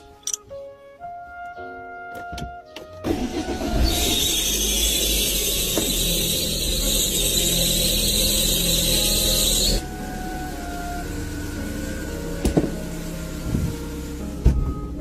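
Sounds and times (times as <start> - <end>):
low engine rumble: 3.1 - 15.0.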